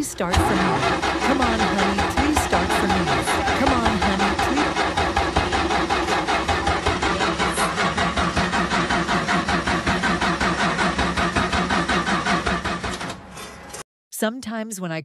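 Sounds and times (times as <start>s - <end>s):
car engine cranking: 0.0s - 13.8s.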